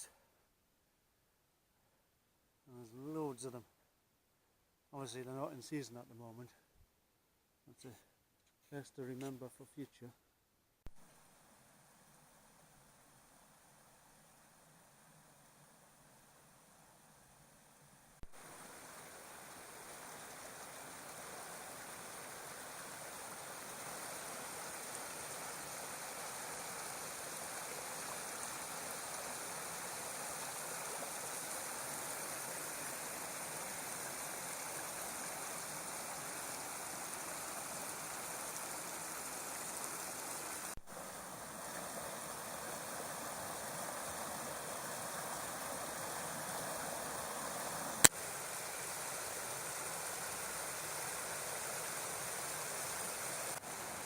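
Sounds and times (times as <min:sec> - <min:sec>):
stream water rushing: 0:18.3 - 0:54.0.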